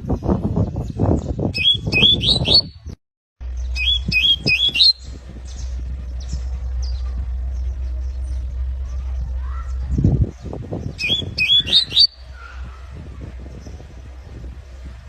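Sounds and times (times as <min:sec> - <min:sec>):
low rumble: 0:00.0 - 0:15.0
canary chirping: 0:01.5 - 0:13.0.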